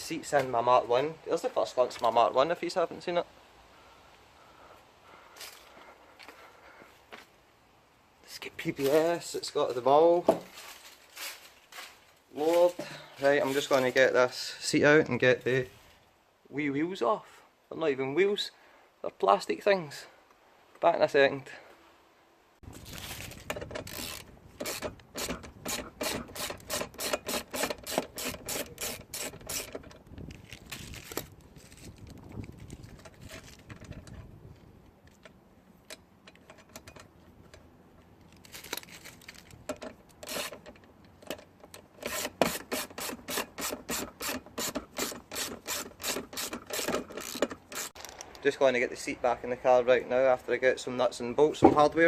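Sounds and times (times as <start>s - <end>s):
scraping and handling: 26.6s - 42.7s
ratchet wrench clicking: 42.0s - 48.0s.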